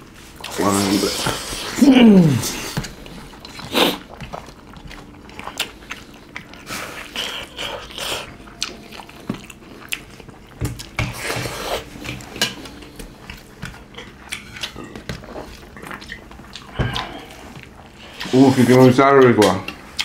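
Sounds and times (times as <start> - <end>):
chewing and mouth smacks: 2.6 - 18.4, 19.7 - 20.0.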